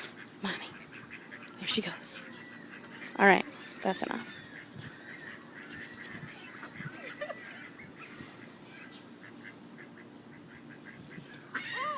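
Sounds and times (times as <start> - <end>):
ducklings peeping: 0.0 - 11.9.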